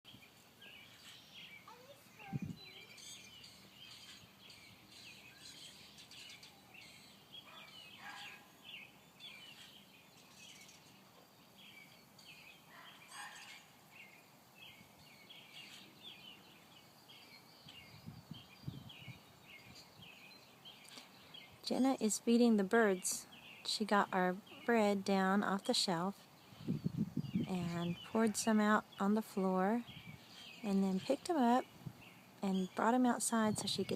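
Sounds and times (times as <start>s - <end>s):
birds chirping: 0.1s - 33.9s.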